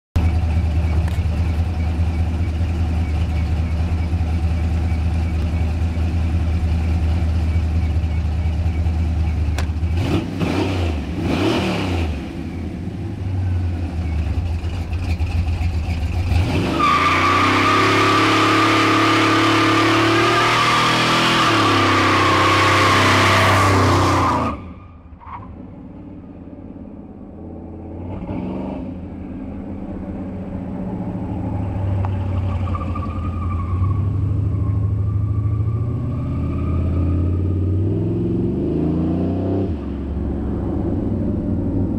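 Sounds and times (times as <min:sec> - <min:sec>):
pickup engine revving: 0:09.6 - 0:12.4, 0:13.9 - 0:24.7.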